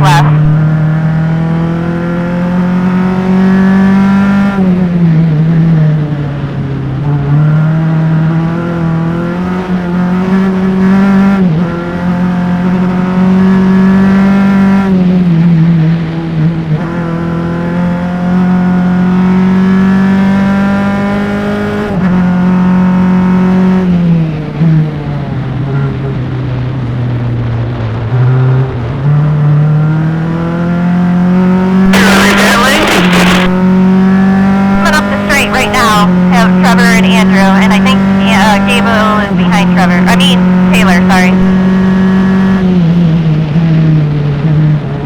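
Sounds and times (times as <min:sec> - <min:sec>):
race car engine revving: 0:38.0 - 0:38.2.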